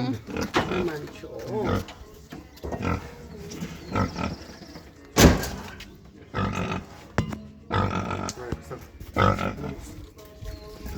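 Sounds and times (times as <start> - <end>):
pig grunting: 0.0 - 4.7, 6.2 - 10.1.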